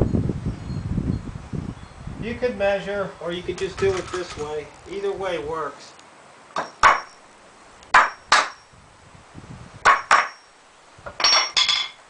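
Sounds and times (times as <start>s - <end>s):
hammer striking nails into wood: 6.6s - 7.1s, 7.9s - 8.6s, 9.8s - 10.4s.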